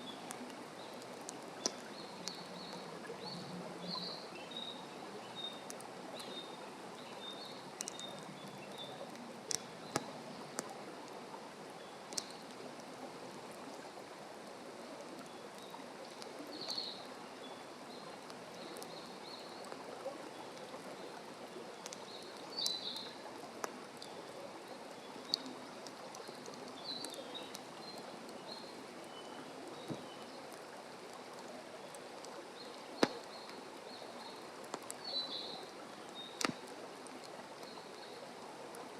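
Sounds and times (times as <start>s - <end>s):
small birds chirping: 0.0s - 10.8s, 15.2s - 23.2s, 24.0s - 30.8s, 31.5s - 36.7s
campfire crackling and popping: 0.0s - 38.9s.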